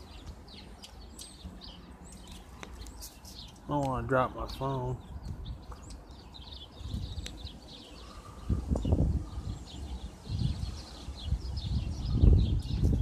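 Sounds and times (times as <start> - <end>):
small birds chirping: 0.0 - 13.0
wind buffeting microphone: 4.9 - 13.0.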